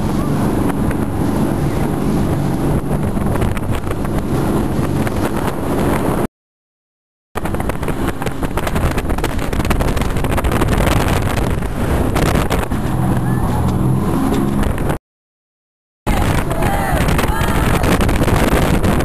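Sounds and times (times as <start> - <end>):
speedboat engine running: 0.0 - 6.3, 7.4 - 15.0, 16.1 - 19.0
wind buffeting microphone: 0.0 - 6.3, 7.4 - 15.0, 16.1 - 19.0.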